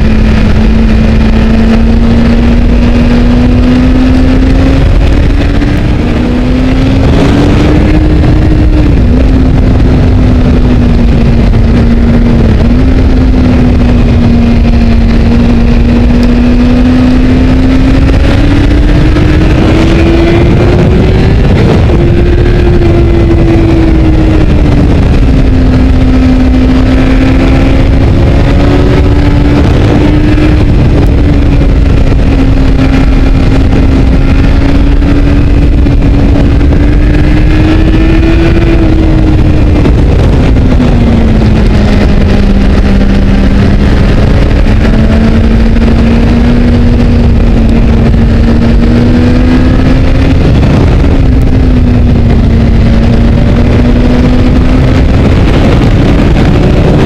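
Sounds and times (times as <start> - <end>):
motorcycle engine at high revs: 0.0 - 57.0
road rumble: 0.0 - 57.0
wind rush on microphone: 0.0 - 57.0.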